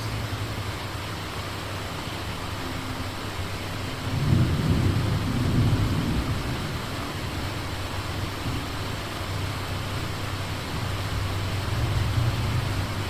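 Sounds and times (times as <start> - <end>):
steady rain: 0.0 - 13.0
thunder rumbling: 3.8 - 13.0.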